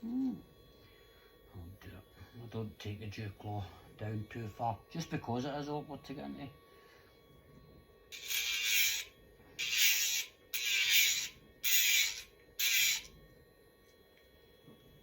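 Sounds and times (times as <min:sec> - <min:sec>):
grinding on dog's nail: 0:08.1 - 0:13.1
electric nail grinder hum: 0:08.1 - 0:13.2.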